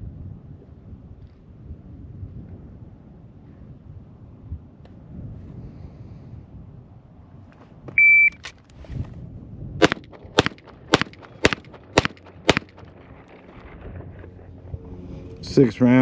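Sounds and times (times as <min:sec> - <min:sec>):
shot timer beep: 0:08.0 - 0:08.4
pistol shots: 0:09.8 - 0:13.0.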